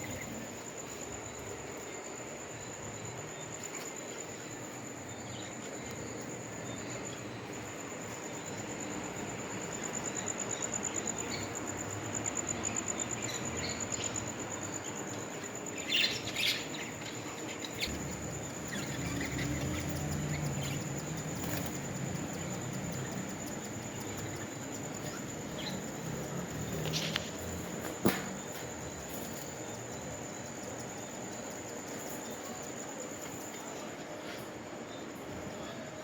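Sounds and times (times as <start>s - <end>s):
background hiss: 0.0s - 36.0s
parrots chirping: 15.5s - 22.7s.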